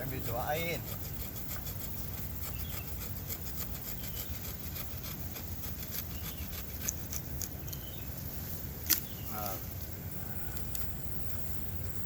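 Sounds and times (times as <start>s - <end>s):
saw cutting bamboo: 0.0s - 7.5s.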